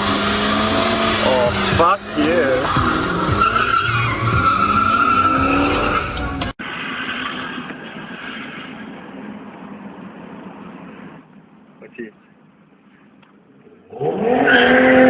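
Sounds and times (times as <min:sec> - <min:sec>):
tyres squealing: 0:00.0 - 0:06.5
car engine revving: 0:00.0 - 0:11.3, 0:13.6 - 0:15.0.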